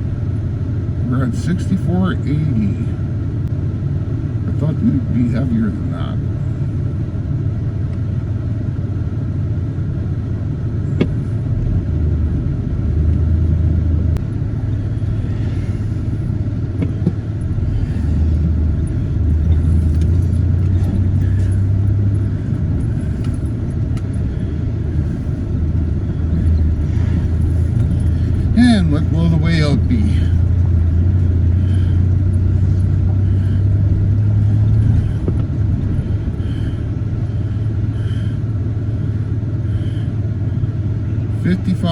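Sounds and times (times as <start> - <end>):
truck engine running: 0.0 - 41.9.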